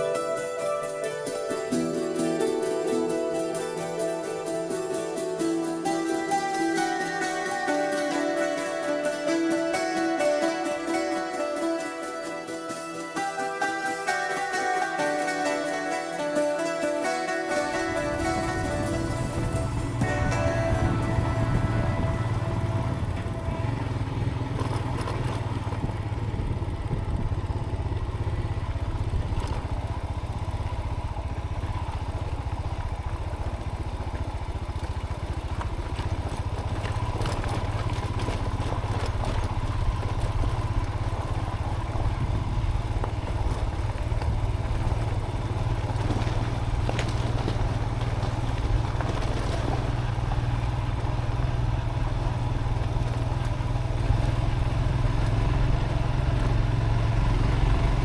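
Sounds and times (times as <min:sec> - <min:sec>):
motorcycle engine running: 0:00.0 - 0:58.0
bike clattering over stones: 0:13.1 - 0:26.1, 0:32.4 - 0:42.1, 0:42.8 - 0:55.5.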